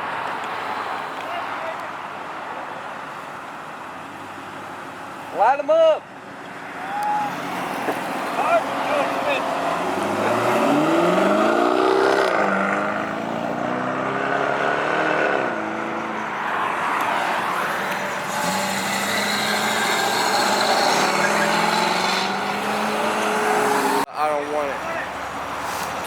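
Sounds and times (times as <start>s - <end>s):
car engine revving: 7.3s - 24.1s.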